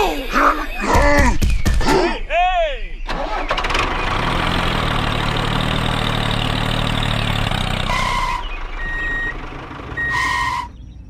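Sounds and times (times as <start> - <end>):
tractor engine running: 3.0 - 11.0.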